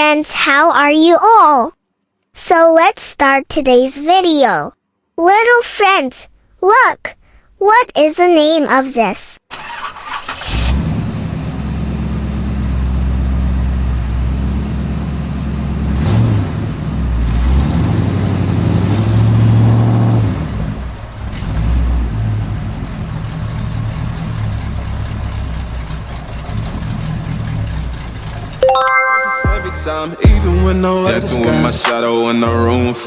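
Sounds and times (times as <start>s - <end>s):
car engine revving: 10.3s - 28.6s.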